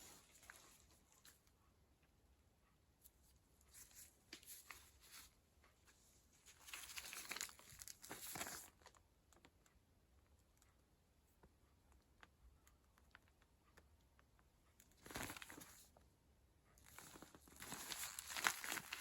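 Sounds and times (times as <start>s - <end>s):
rustling and crinkling: 0.0s - 1.5s, 3.0s - 9.6s, 14.7s - 16.1s, 16.8s - 19.0s.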